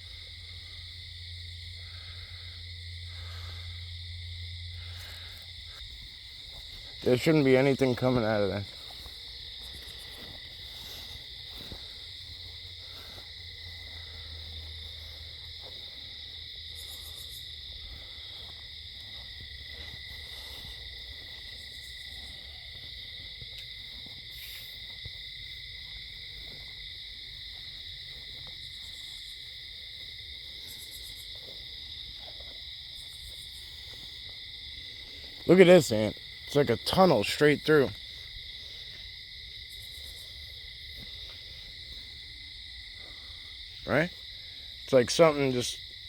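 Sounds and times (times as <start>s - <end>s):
insects singing high-pitched: 0.0s - 46.0s.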